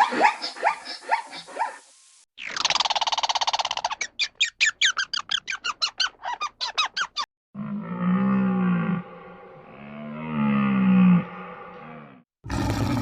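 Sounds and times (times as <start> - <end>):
deep drawn-out animal call: 7.6 - 13.0.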